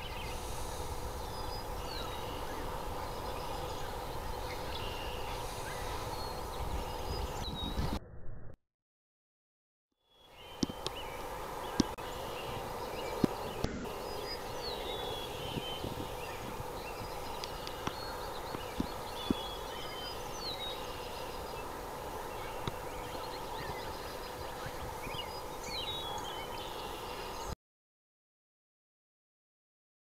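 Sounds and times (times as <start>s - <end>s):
birds chirping: 0.0s - 8.0s, 10.1s - 27.6s
low hum: 0.0s - 8.6s.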